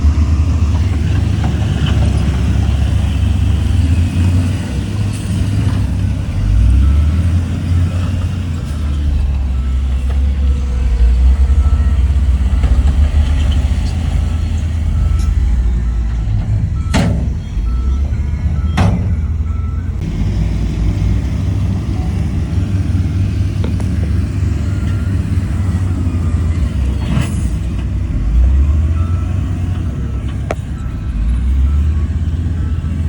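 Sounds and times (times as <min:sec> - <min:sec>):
diesel machinery rumbling: 0:00.0 - 0:33.0
reversing alarm beeping: 0:06.5 - 0:20.0, 0:23.7 - 0:27.6, 0:28.5 - 0:33.0.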